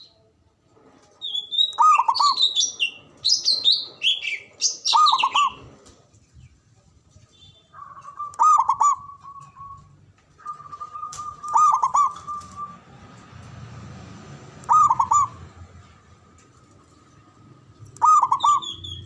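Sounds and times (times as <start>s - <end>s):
dove cooing: 1.8s - 2.9s, 3.5s - 5.8s, 7.8s - 13.1s, 14.6s - 15.7s, 17.8s - 19.0s.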